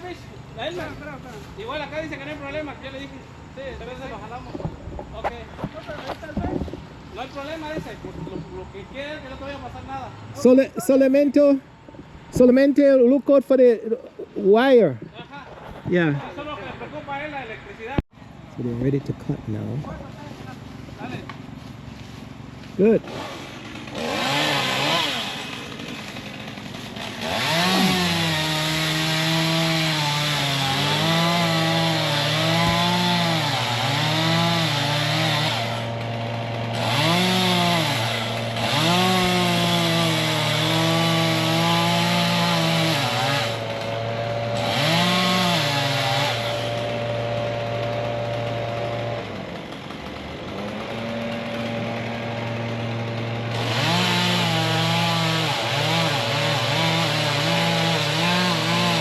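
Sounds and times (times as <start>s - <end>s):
chainsaw cutting wood: 21.1s - 59.0s.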